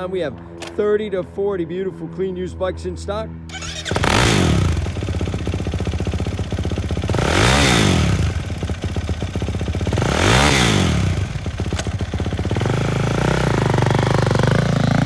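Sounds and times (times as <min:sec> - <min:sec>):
motorcycle engine idling and revving: 0:03.5 - 0:15.0.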